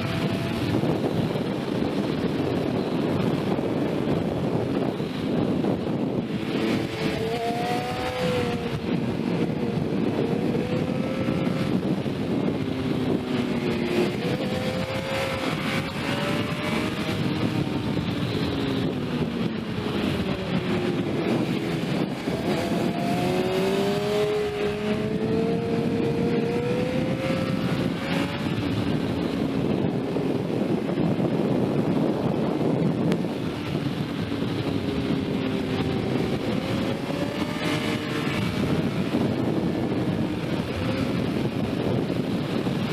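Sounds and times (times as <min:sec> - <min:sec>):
motorcycle engine accelerating: 0:00.0 - 0:42.9
wind on microphone: 0:00.0 - 0:42.9.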